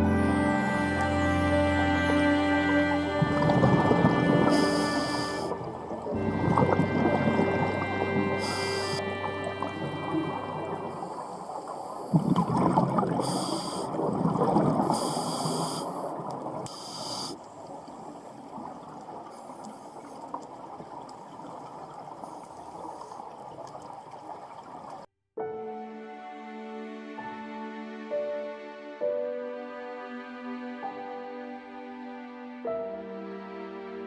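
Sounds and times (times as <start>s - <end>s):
water surging: 0.0s - 25.1s
short high hisses: 4.4s - 5.6s, 8.4s - 9.0s, 13.2s - 14.0s, 14.9s - 16.1s, 16.7s - 17.4s.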